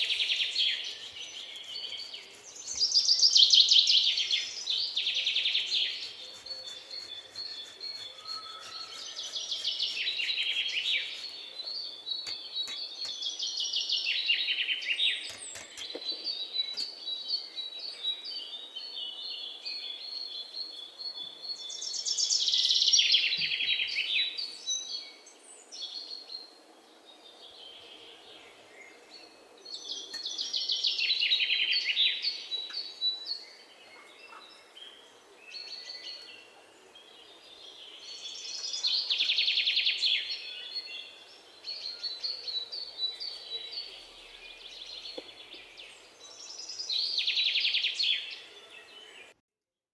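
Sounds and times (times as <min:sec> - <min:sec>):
birds calling in high trills: 0:00.0 - 0:13.7.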